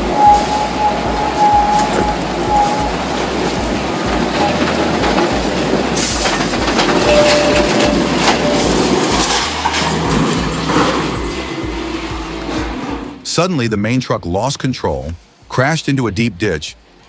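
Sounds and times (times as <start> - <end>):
thin squeal: 0.0 - 13.1
heavy machinery running: 0.0 - 13.2
rattling clanking metal: 0.0 - 13.2.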